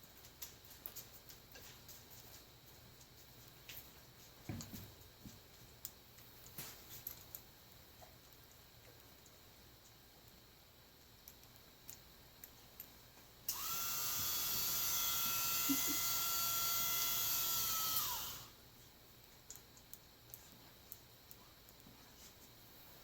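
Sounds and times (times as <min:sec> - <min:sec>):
power tool motor whirring: 0:13.5 - 0:18.6.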